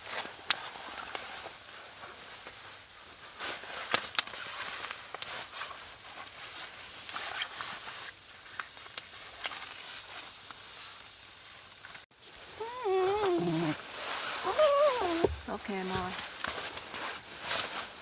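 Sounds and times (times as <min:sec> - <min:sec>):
small dog whining: 0:12.6 - 0:13.8, 0:14.4 - 0:15.4.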